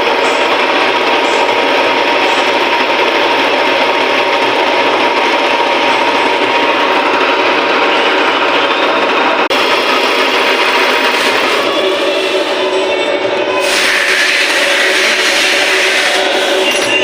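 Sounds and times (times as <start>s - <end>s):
metal lathe machining: 0.0s - 17.0s.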